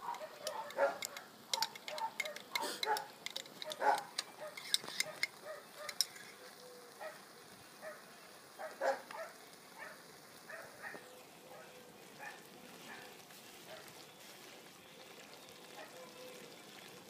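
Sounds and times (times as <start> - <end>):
sharp clicks and pops: 0.0 - 6.4
wood fire crackling: 0.0 - 17.0.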